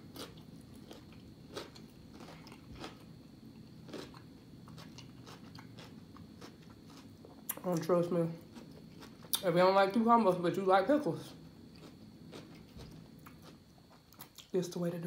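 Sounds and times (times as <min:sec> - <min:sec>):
person chewing food: 0:00.0 - 0:07.8, 0:08.4 - 0:09.4, 0:11.7 - 0:14.5
faint high whine: 0:00.0 - 0:15.0.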